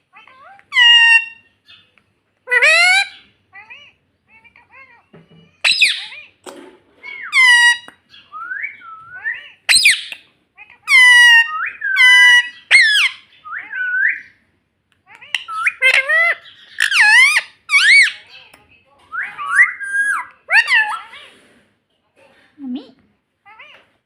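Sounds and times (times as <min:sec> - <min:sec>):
parrot squawks and whistles: 0:05.6 - 0:06.2, 0:07.0 - 0:10.2, 0:10.9 - 0:14.3, 0:19.1 - 0:21.1.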